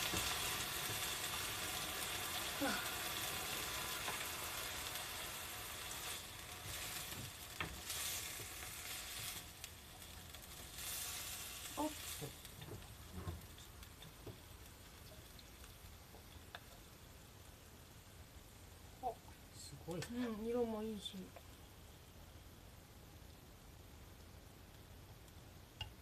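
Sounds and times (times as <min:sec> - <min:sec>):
food sizzling in a frying pan: 0:00.0 - 0:19.2.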